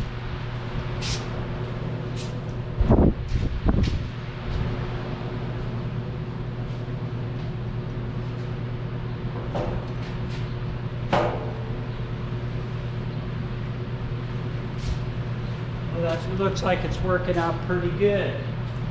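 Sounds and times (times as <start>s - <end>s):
sharp knocks: 11.1s - 11.7s.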